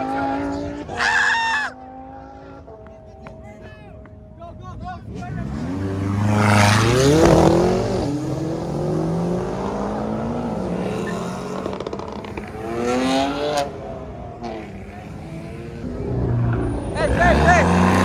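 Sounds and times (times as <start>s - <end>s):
car engine revving hard: 5.1s - 18.0s.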